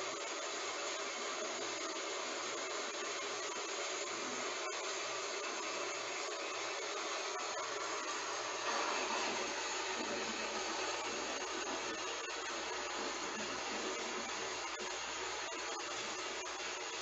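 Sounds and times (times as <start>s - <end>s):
heavy rain hissing: 6.8s - 14.7s.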